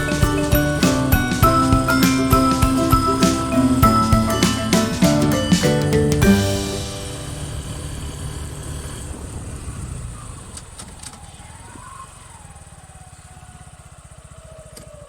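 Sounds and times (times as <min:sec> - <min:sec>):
music: 0:00.0 - 0:08.0
motorcycle engine idling: 0:00.0 - 0:15.0.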